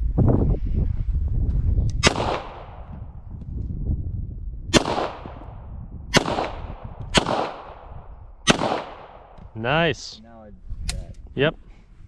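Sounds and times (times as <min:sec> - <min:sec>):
pistol shots ringing: 0:02.0 - 0:02.9, 0:04.8 - 0:05.4, 0:06.2 - 0:07.9, 0:08.5 - 0:09.4.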